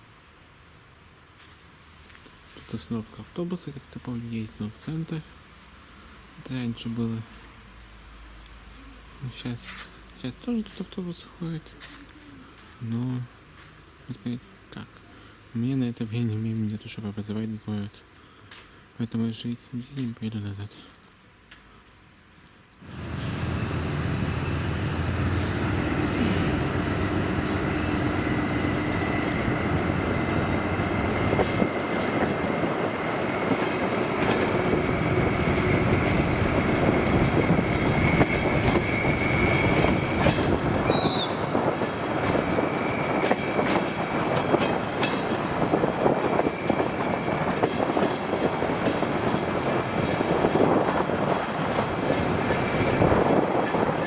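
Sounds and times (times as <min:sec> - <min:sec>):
train rumbling on track: 0:22.8 - 0:54.0
high wheel squeal: 0:34.7 - 0:41.6.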